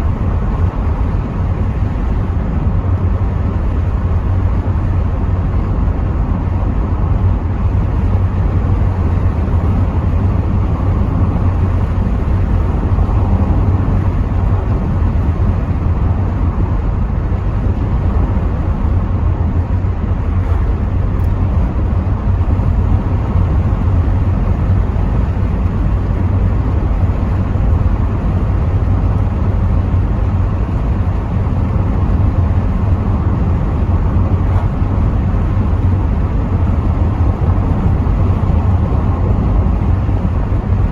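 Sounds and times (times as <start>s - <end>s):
air through open windows: 0.0s - 40.9s
car interior road rumble: 0.0s - 40.9s.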